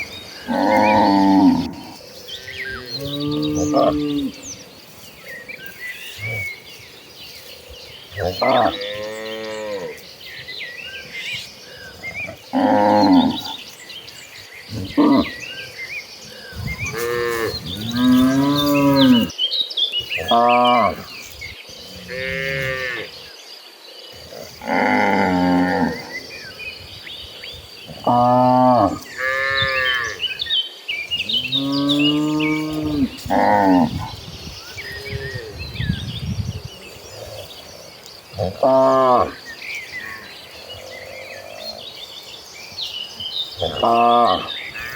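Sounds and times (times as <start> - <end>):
cows mooing: 0.0 - 4.6, 8.2 - 10.0, 11.6 - 13.7, 16.3 - 19.3, 21.9 - 23.2, 24.3 - 26.1, 27.9 - 30.3, 31.2 - 34.2, 38.4 - 39.4, 43.6 - 44.9
small birds chirping: 0.0 - 44.9
cattle mooing: 0.5 - 4.4, 16.6 - 19.3, 31.3 - 34.1.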